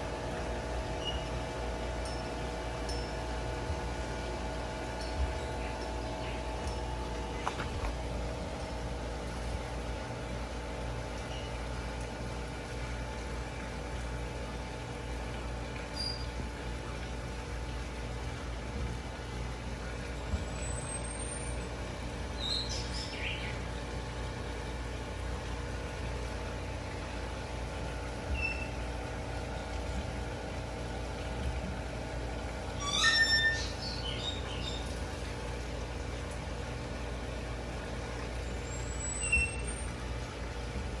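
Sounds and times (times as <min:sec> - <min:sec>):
high bird chirps: 0:32.8 - 0:34.9.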